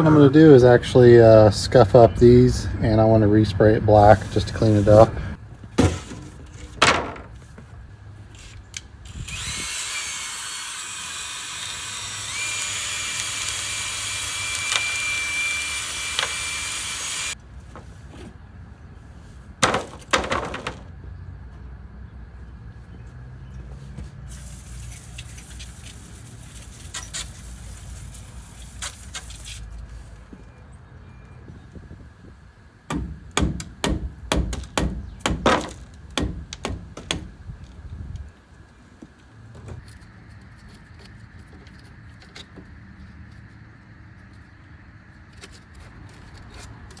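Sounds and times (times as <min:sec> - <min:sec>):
heavy knocks: 0:32.9 - 0:37.4.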